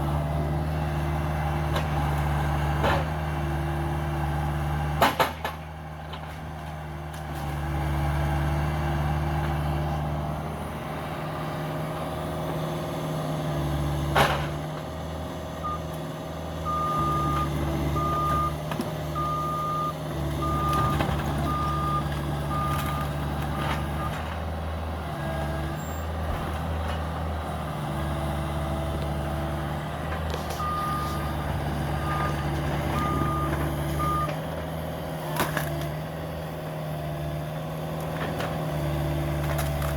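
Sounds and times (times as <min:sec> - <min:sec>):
excavator diesel engine running: 0:00.0 - 0:39.9
backup alarm beeping: 0:16.7 - 0:18.6, 0:19.2 - 0:23.1.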